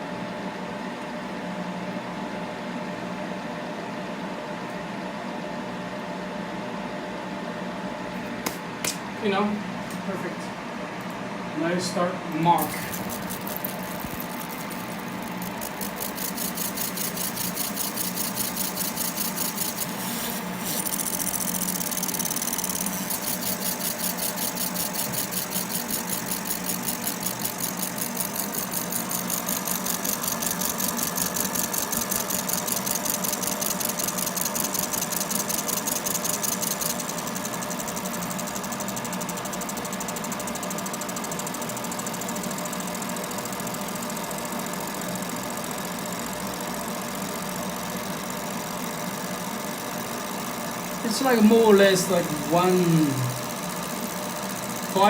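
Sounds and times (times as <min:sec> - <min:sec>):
steady machine hum: 0:00.0 - 0:55.0
pulsing mechanical buzz: 0:12.6 - 0:55.0.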